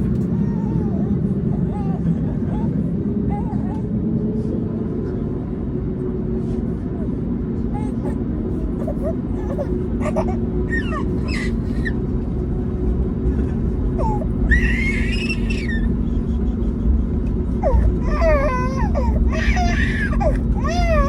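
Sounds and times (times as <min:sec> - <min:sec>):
airplane cabin rumble: 0:00.0 - 0:21.0
low engine tones: 0:00.0 - 0:21.0
baby crying: 0:08.8 - 0:12.0, 0:14.0 - 0:16.2, 0:17.5 - 0:21.0.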